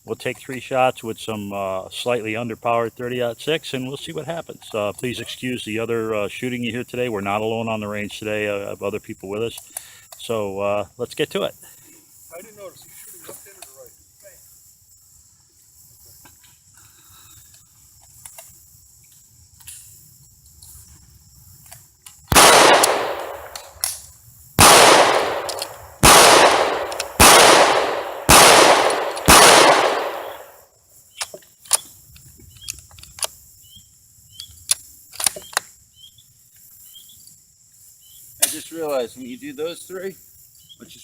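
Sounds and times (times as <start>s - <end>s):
faint sharp cracks: 22.0s - 30.6s
loud gunshots: 22.3s - 23.8s, 24.6s - 30.6s.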